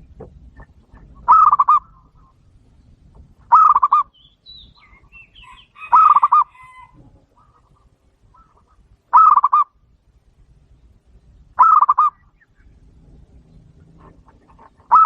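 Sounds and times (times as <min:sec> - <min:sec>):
dove staccato cooing: 0:00.0 - 0:02.4, 0:03.2 - 0:04.1, 0:05.0 - 0:09.8, 0:11.6 - 0:12.6, 0:13.7 - 0:15.0
small birds chirping: 0:00.0 - 0:15.0.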